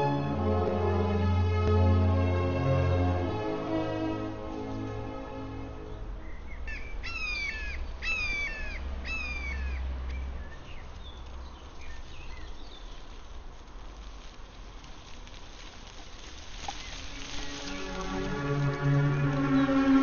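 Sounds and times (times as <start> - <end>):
background music: 0.0 - 6.6, 16.9 - 20.0
bird cawing: 6.6 - 9.9.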